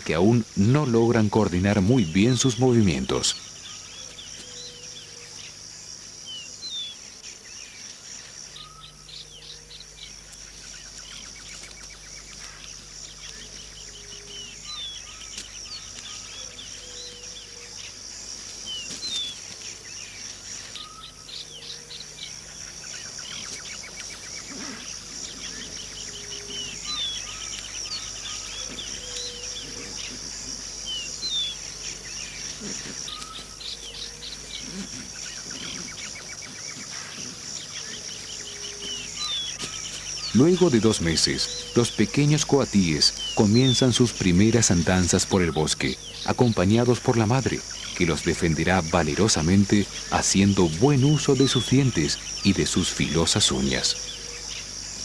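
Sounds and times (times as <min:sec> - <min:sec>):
high insect drone: 0:00.0 - 0:55.0
birds chirping and whistling: 0:08.5 - 0:09.9, 0:10.6 - 0:17.9, 0:20.0 - 0:22.2, 0:22.9 - 0:54.7.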